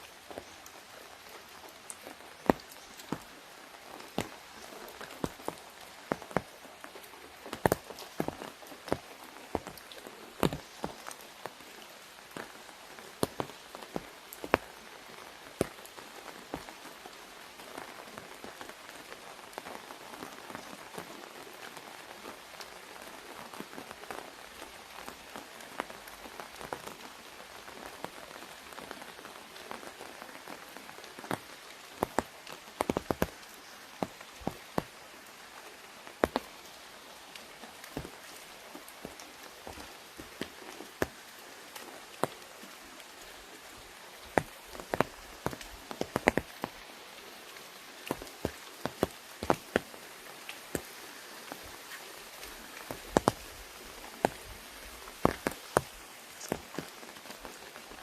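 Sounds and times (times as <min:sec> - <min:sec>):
rain pattering on umbrella: 0:00.0 - 0:58.0.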